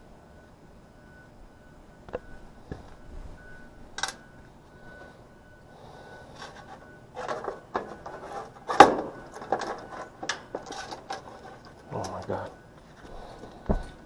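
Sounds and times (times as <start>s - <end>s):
hand tools clicking on metal parts: 4.0s - 4.2s, 6.4s - 12.4s
scraping: 6.3s - 14.0s.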